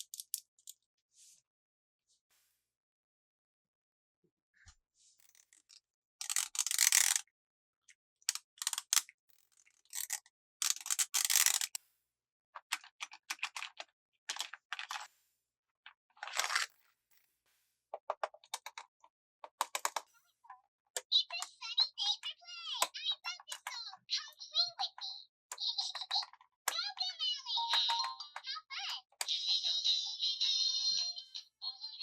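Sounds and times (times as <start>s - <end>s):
small clicks: 8.3s - 9.1s.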